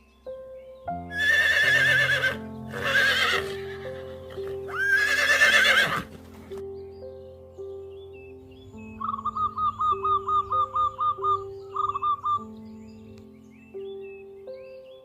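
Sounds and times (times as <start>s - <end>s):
background music: 0.0s - 15.0s
horse whinnying: 1.1s - 6.2s.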